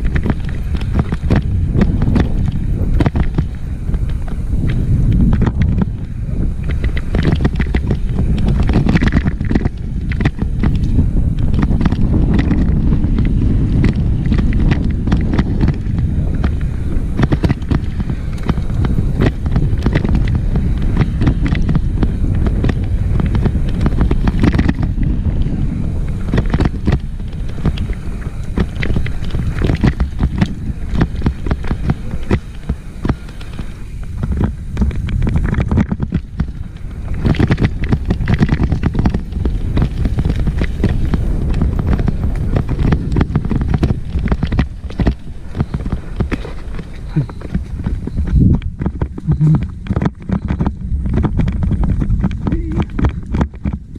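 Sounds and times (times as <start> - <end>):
bike rattling over rocks: 0.0 - 53.9
wind rushing over microphone: 0.0 - 53.9.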